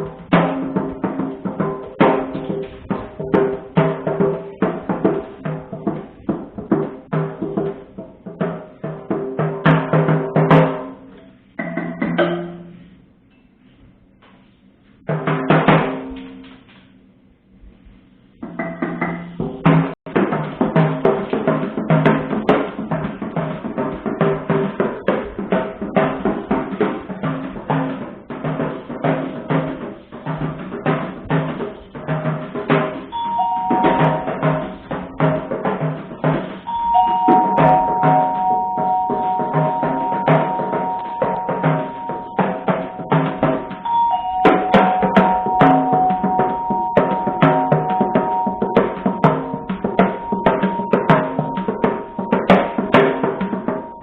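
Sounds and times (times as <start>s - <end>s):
rapid drumming on drum kit: 0.0s - 11.0s, 15.1s - 16.4s, 18.4s - 54.0s
steady held tones: 33.1s - 54.0s.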